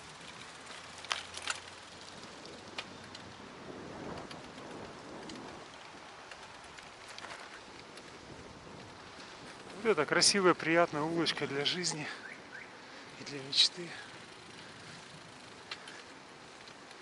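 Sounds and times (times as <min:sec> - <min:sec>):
sharp crackles: 0:00.0 - 0:17.0
wind noise: 0:02.1 - 0:11.7.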